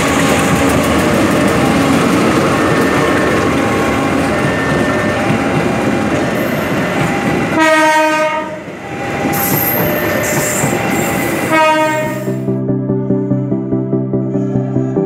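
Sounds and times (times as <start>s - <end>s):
train coaches clattering on rails: 0.0s - 12.4s
train horn blowing: 6.2s - 12.5s.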